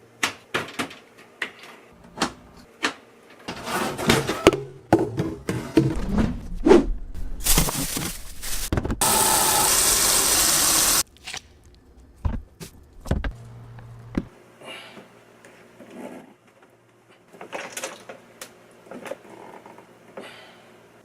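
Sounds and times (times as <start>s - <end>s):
plastic parts knocking and clicking: 0.2s - 3.0s.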